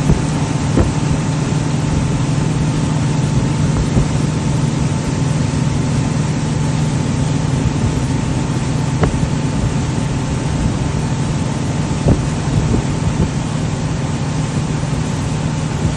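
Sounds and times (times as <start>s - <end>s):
sharp knocks: 0.0s - 1.2s, 9.0s - 9.3s
loud rushing noise: 0.0s - 15.9s
outboard motor running: 0.0s - 15.9s.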